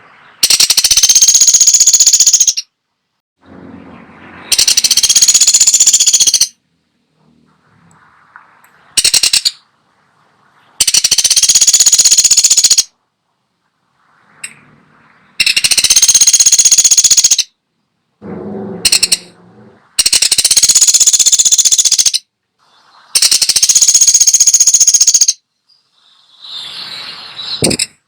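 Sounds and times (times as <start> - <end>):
woodpecker rattling calls: 0.4 - 2.7, 4.5 - 6.6, 9.0 - 9.6, 10.8 - 12.9, 15.4 - 17.5, 18.8 - 19.3, 20.0 - 22.3, 23.2 - 25.4.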